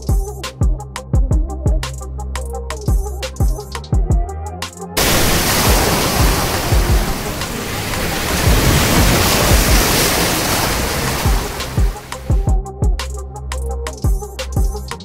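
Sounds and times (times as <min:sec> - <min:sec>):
background music beat: 0:00.0 - 0:15.0
waves washing on shore: 0:05.0 - 0:12.3.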